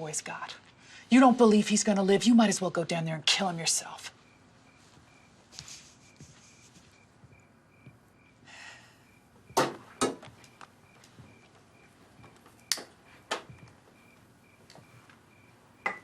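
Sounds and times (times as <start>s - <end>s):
sharp knocks and thuds: 9.5s - 10.4s.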